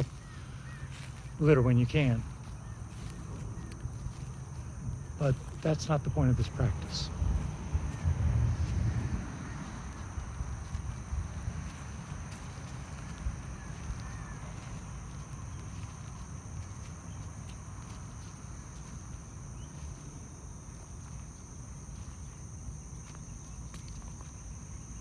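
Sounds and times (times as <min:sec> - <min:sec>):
faint bird chirps: 0:00.0 - 0:05.0
insects droning: 0:00.0 - 0:25.0
low rumble: 0:06.7 - 0:13.4.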